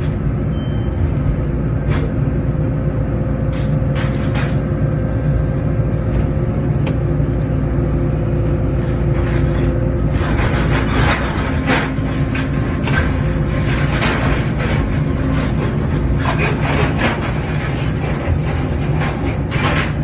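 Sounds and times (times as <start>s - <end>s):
excavator diesel engine running: 0.0s - 20.0s
concrete debris knocking and clattering: 10.2s - 20.0s.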